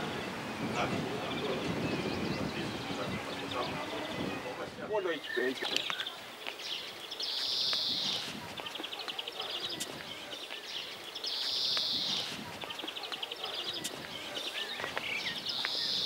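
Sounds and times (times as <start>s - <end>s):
other birds calling faintly: 0.0s - 16.0s
songbird ticking and buzzing song: 5.1s - 16.0s.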